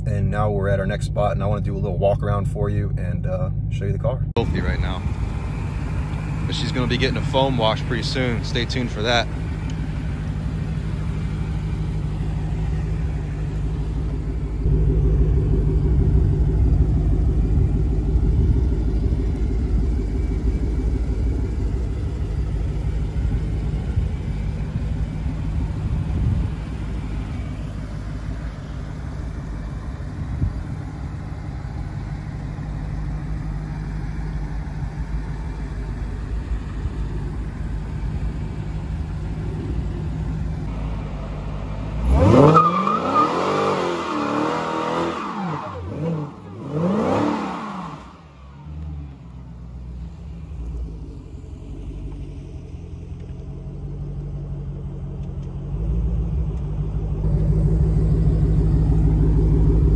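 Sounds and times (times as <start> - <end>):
car engine idling: 0.0 - 59.9
engine revving hard: 42.0 - 48.4.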